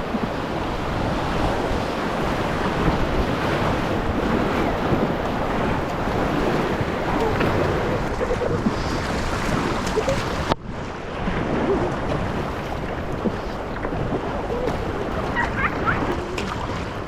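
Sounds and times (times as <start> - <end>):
river water rushing and splashing: 0.0 - 17.0
wind buffeting microphone: 0.0 - 17.0.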